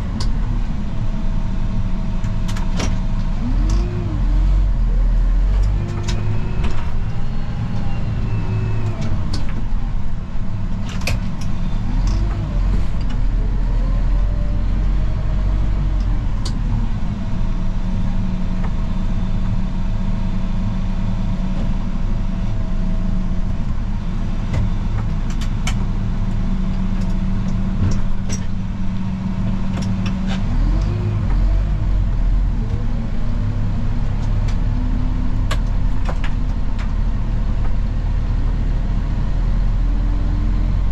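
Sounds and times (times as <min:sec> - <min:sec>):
vehicle engine running: 0:00.0 - 0:40.9.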